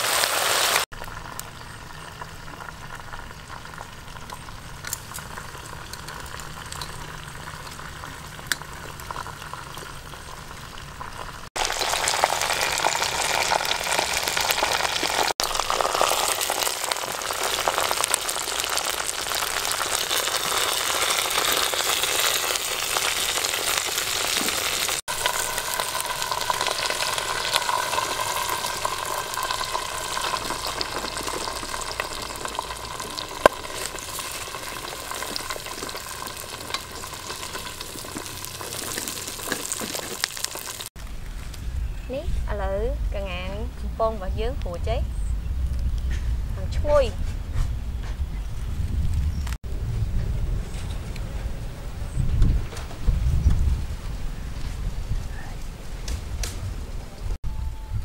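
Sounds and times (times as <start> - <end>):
chicken sizzling in hot oil: 0.0 - 41.1.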